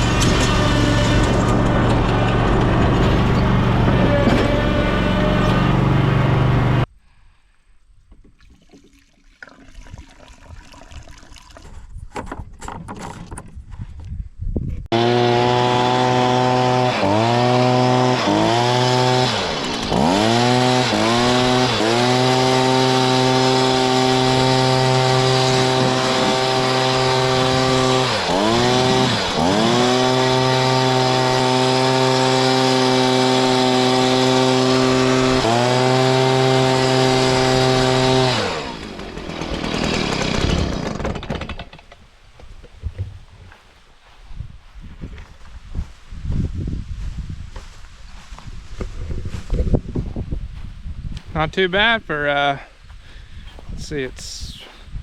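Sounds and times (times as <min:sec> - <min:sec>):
loud engine running: 0:00.0 - 0:06.9, 0:14.9 - 0:41.8
two-stroke power tool revving: 0:00.0 - 0:06.9, 0:14.9 - 0:42.0.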